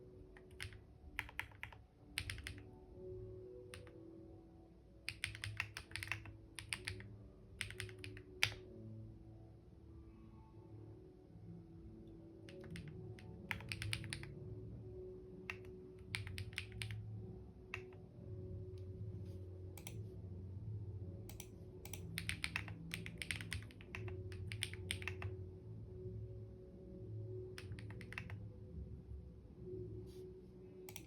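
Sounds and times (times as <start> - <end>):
low background tone: 0.0 - 31.0
typing on a keyboard: 0.4 - 2.7, 3.7 - 4.0, 5.0 - 8.7, 12.5 - 14.3, 15.5 - 17.0, 19.8 - 20.0, 21.3 - 25.4, 27.6 - 28.4.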